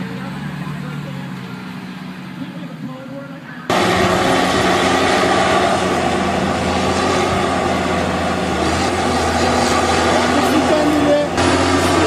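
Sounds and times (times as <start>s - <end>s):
heavy machine engine running: 3.7s - 12.0s.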